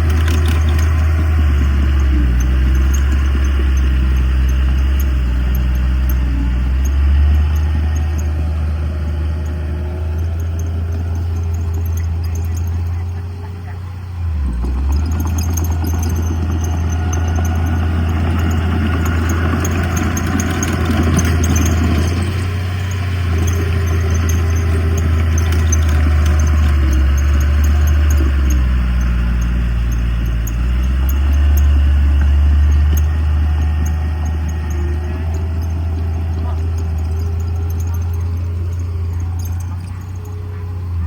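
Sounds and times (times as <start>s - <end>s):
diesel engine droning: 0.0s - 41.0s.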